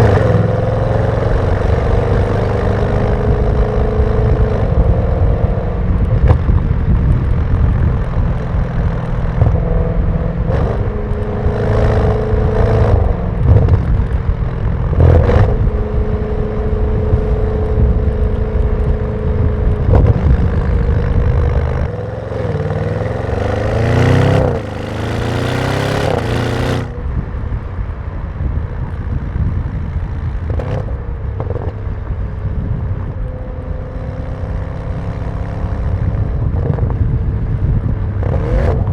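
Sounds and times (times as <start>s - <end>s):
car exhaust revving: 0.0s - 38.9s
exhaust cracks: 3.3s - 33.2s.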